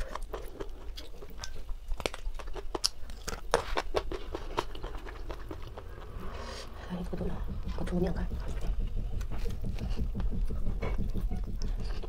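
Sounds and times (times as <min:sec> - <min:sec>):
chewing crisp chicken: 0:00.0 - 0:06.2.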